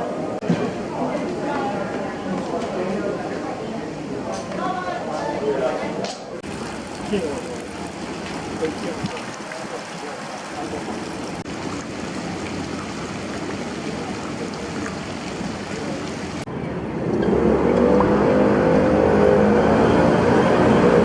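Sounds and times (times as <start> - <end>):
city background noise: 0.0 - 21.0
moving vehicle rumbling: 7.4 - 21.0.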